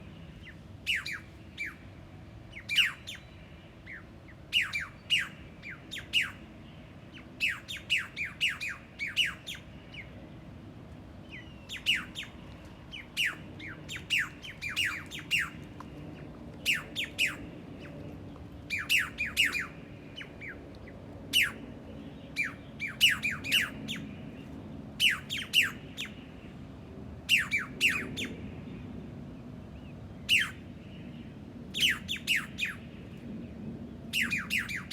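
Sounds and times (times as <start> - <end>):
bird calling with sharp notes: 11.4 - 15.9, 18.7 - 20.6, 34.1 - 34.9.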